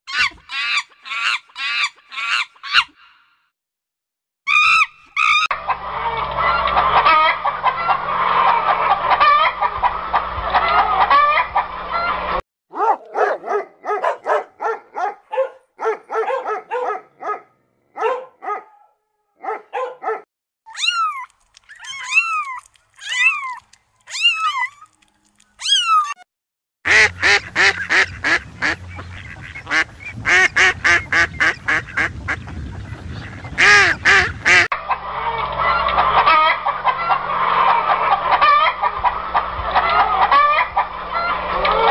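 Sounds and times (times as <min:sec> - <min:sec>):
farm poultry calling: 0:04.5 - 0:17.4, 0:26.9 - 0:41.9.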